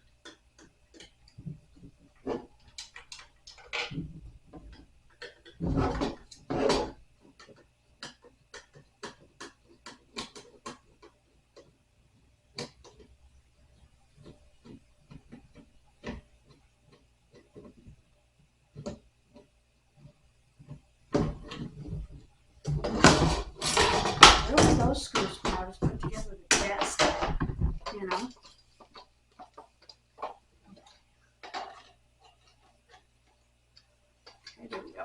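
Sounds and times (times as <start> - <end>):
panels knocking: 21.1 - 29.6.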